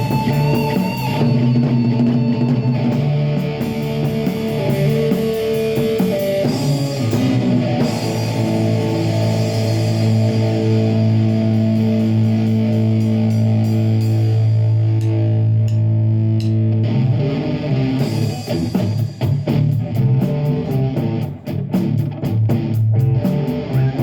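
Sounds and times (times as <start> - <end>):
rock band playing: 0.0 - 24.0.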